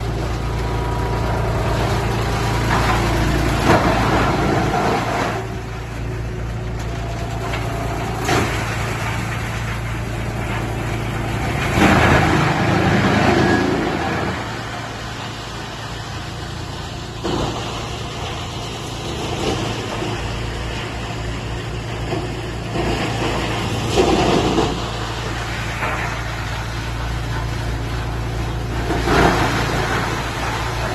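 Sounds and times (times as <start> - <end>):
wood crusher machine drone: 0.0 - 30.9.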